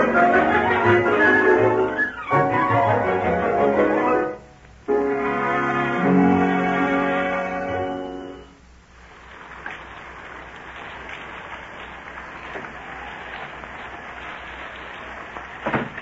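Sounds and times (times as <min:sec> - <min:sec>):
music: 0:00.0 - 0:08.6
heavy rain hiss: 0:00.0 - 0:16.0.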